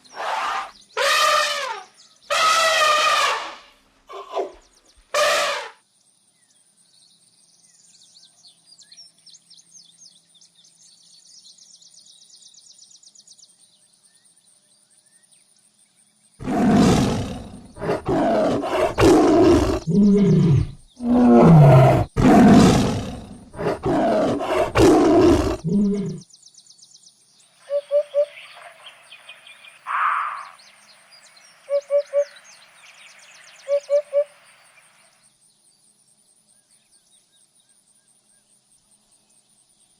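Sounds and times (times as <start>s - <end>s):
short animal calls: 0.1s - 4.6s, 5.2s - 5.8s
large animal roaring: 16.4s - 26.2s.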